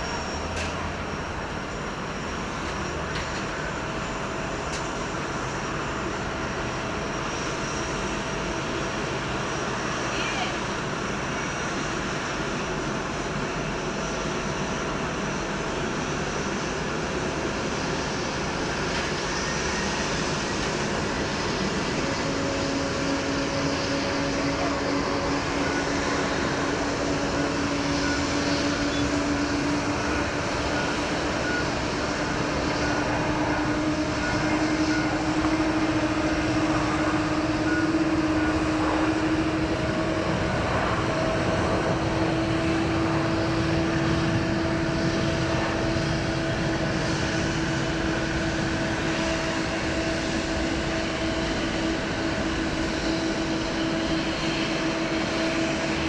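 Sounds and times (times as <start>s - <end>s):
jet engines rushing: 0.0s - 56.0s.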